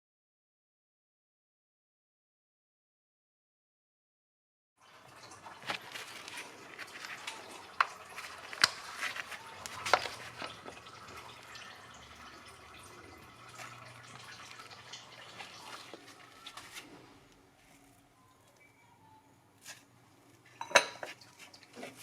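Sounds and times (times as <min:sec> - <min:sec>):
oil trickling into a pan: 0:04.8 - 0:17.0, 0:20.5 - 0:22.0.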